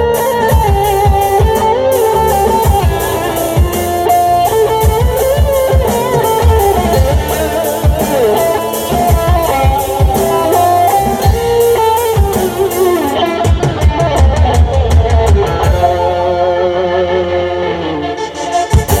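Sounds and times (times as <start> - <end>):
cymbals: 0.0 - 14.2
gliding melodic lead line: 0.0 - 19.0
live band instrumental: 0.0 - 19.0.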